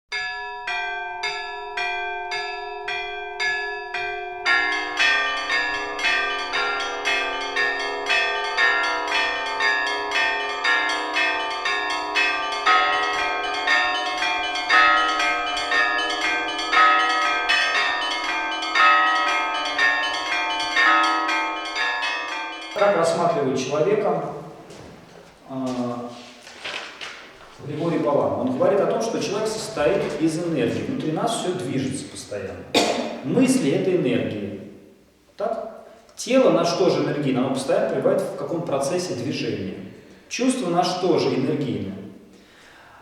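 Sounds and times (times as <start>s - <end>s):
church bells ringing: 0.1s - 25.1s, 27.8s - 34.4s.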